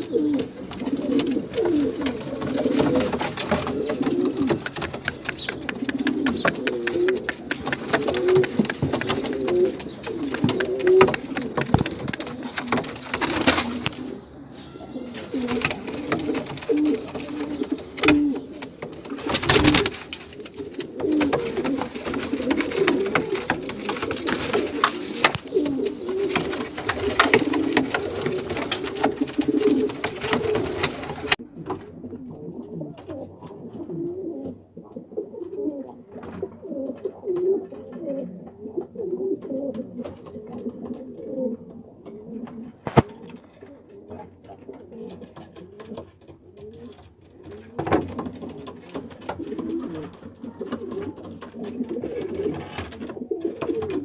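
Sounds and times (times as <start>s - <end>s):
pigeons cooing: 0.0s - 54.0s
scattered clicks: 2.9s - 14.0s.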